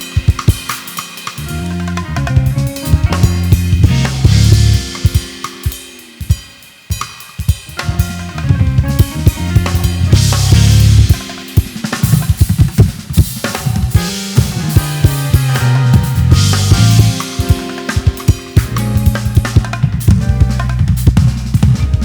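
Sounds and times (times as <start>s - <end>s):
keyboard chords: 0.0s - 6.1s, 7.7s - 22.0s
drum kit: 0.0s - 22.0s
sustained bass notes: 1.4s - 5.0s, 7.8s - 11.2s, 14.4s - 17.3s, 18.6s - 22.0s.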